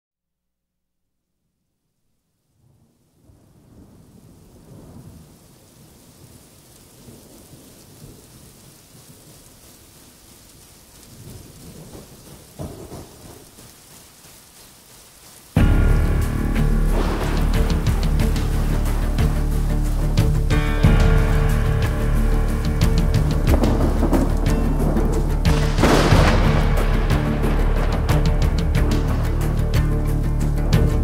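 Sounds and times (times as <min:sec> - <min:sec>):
rain: 0:02.3 - 0:31.0
rumbling thunder: 0:02.7 - 0:09.4, 0:11.1 - 0:13.6, 0:15.8 - 0:29.7.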